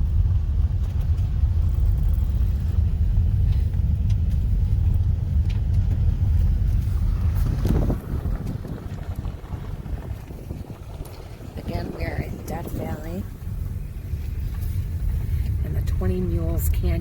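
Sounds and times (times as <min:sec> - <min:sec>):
car road rumble: 0:00.0 - 0:17.0.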